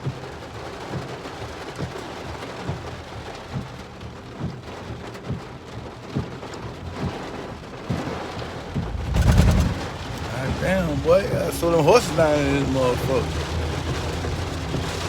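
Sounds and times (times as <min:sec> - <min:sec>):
heavy rain pouring: 0:00.0 - 0:15.0
soft low thump: 0:08.8 - 0:10.2.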